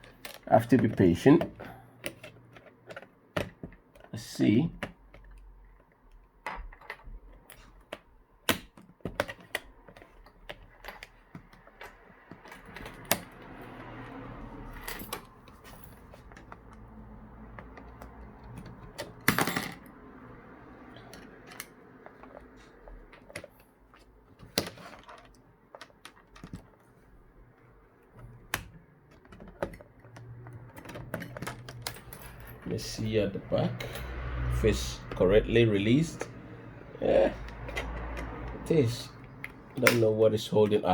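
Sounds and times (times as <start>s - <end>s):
tools clattering: 17.5s - 19.9s.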